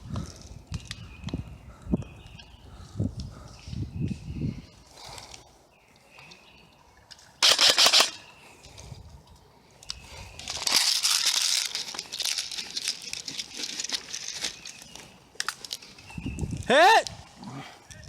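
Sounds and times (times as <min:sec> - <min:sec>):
airsoft gunfire burst: 0:07.4 - 0:08.2
crackling rustling noise: 0:08.4 - 0:18.0.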